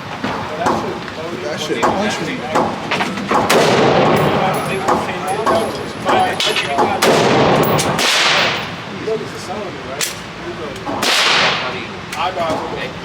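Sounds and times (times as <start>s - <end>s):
sharp gunshot crack: 1.8s - 5.6s, 6.4s - 8.7s, 10.9s - 11.7s
loud gunshots with ringing tail: 1.8s - 8.8s, 10.9s - 11.8s.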